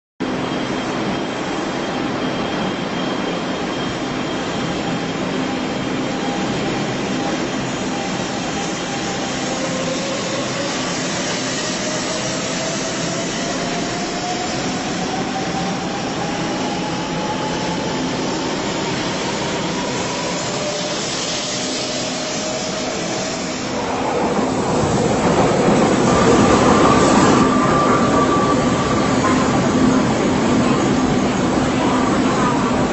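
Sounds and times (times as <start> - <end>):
train rushing noise: 0.2 - 32.9.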